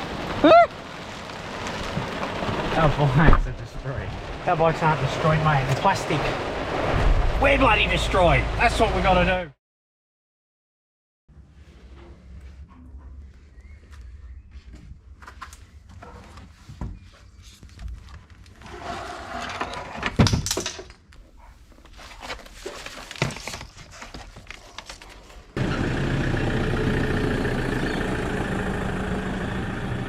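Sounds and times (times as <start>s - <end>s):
vehicle running with low hum: 25.6s - 30.0s.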